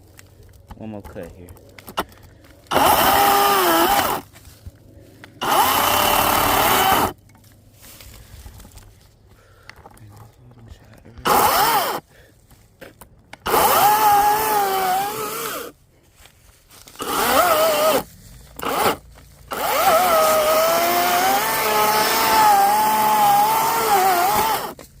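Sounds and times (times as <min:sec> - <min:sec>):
electric chainsaw cutting wood: 0:02.6 - 0:04.3, 0:05.4 - 0:07.2, 0:11.2 - 0:12.0, 0:13.4 - 0:15.8, 0:17.0 - 0:24.8.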